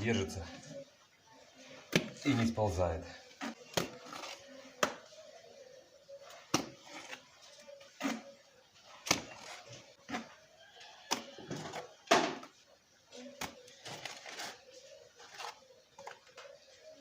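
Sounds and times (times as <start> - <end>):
mortar slapping onto brick wall: 1.9 - 2.5, 3.4 - 5.1, 6.4 - 7.2, 9.0 - 10.3.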